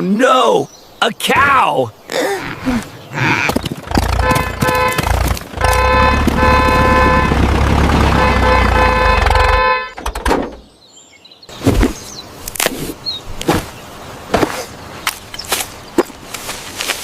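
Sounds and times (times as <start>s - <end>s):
engine rumbling: 2.6s - 10.8s
vehicle horn honking: 4.2s - 10.0s.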